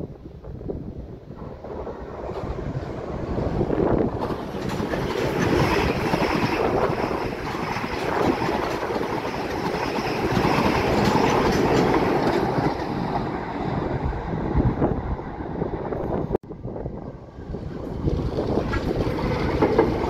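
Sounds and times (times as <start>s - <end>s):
train wheels clattering: 1.4s - 13.8s, 18.0s - 20.0s.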